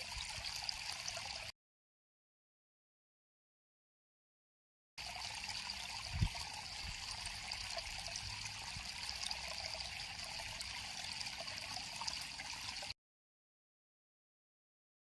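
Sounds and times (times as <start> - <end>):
river water flowing: 0.0 - 1.5, 5.0 - 12.9.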